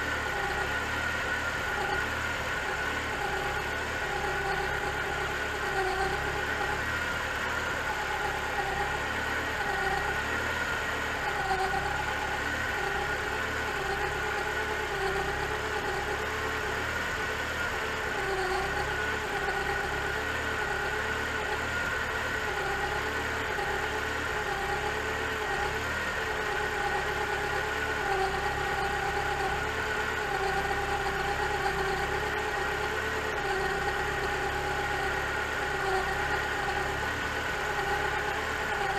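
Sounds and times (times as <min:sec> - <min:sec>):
car engine idling: 0:00.0 - 0:38.9
timing belt whine: 0:00.0 - 0:38.9.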